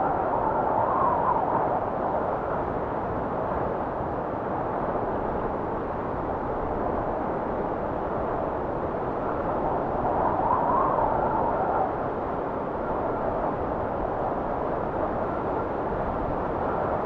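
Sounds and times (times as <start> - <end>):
blizzard wind rushing: 0.0 - 17.0
faint wind whistle: 9.2 - 17.0.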